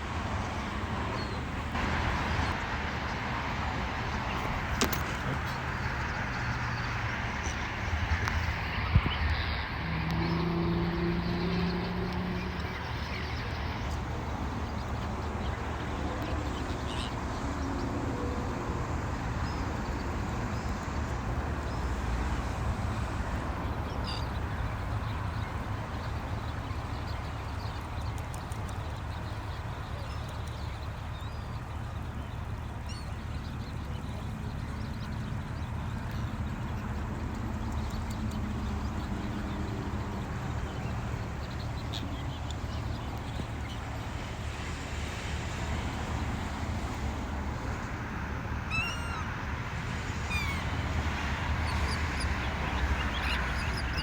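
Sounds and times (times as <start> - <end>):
low rumbling background noise: 0.0 - 54.0
faint bird calls: 21.6 - 44.1, 48.7 - 49.3.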